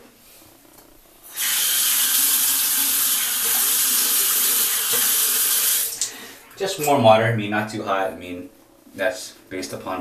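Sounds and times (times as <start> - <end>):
tap water running into basin: 1.3 - 7.0.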